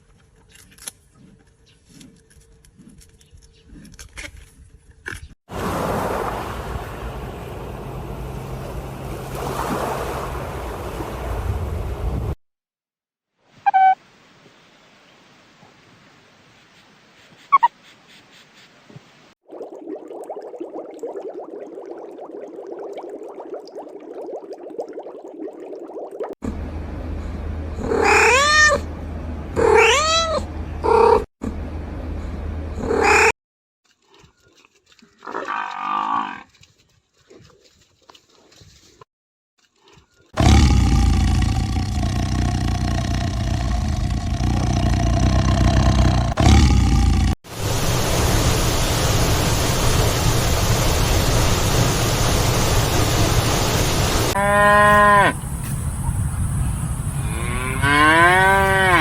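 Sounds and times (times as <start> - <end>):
steady low hum: 26.4 - 27.9
rough animal call: 27.8 - 28.8, 40.4 - 47.4
cat meowing: 29.6 - 30.4
cow mooing: 54.4 - 55.4, 57.3 - 59.0.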